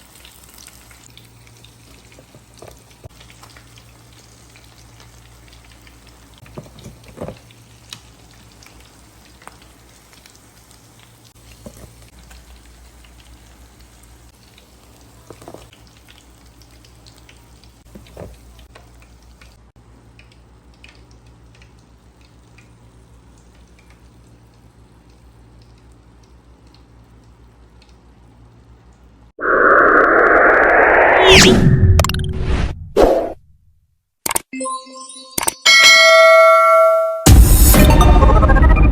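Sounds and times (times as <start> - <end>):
chicken frying in hot oil: 0.0 - 29.3.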